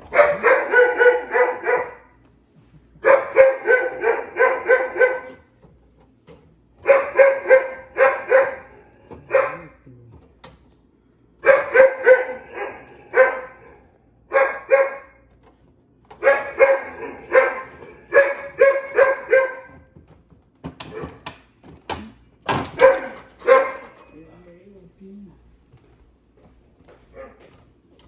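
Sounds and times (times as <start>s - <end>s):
dog barking: 0.0s - 2.2s, 3.0s - 5.5s, 6.8s - 9.8s, 11.4s - 15.3s, 16.2s - 19.9s, 20.8s - 21.2s, 22.6s - 24.1s, 27.1s - 27.5s.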